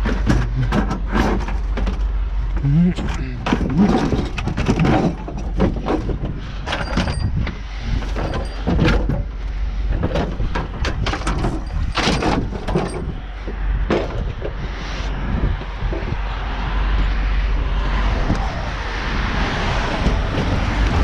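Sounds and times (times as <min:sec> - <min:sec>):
low rumble: 0:00.0 - 0:21.0
dishwasher clunking and scraping: 0:10.0 - 0:13.1.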